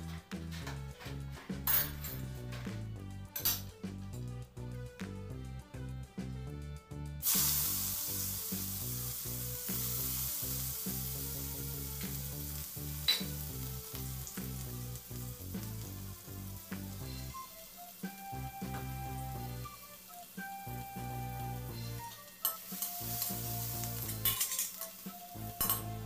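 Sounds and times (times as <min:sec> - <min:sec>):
rhythmic background music: 0:00.0 - 0:26.0
vegetables sizzling in hot oil: 0:07.2 - 0:26.0.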